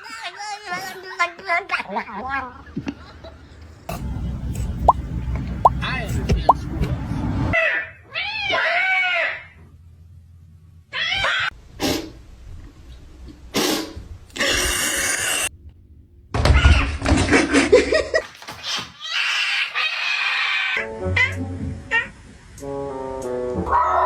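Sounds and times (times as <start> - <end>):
noisy bursts: 3.9 - 7.6.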